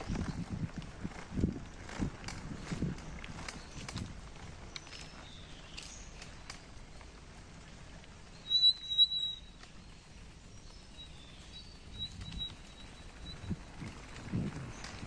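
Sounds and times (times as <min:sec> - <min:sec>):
bicycle rattling on forest path: 0:00.0 - 0:15.0
birds calling: 0:02.8 - 0:07.2.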